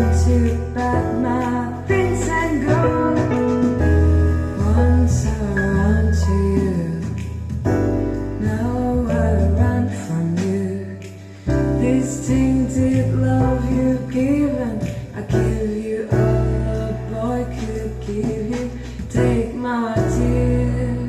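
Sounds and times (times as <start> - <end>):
person singing: 0.0 - 7.6, 8.4 - 21.0
jazz band playing: 0.0 - 10.8.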